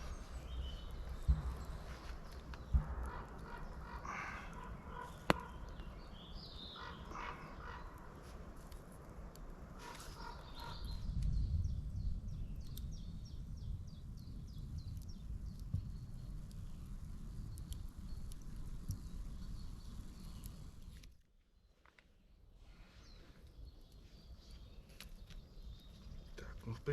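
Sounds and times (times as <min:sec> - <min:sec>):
low rumble: 0:00.0 - 0:06.0
birds calling harshly: 0:00.0 - 0:08.2, 0:09.8 - 0:11.2
sharp crack: 0:01.2 - 0:05.9.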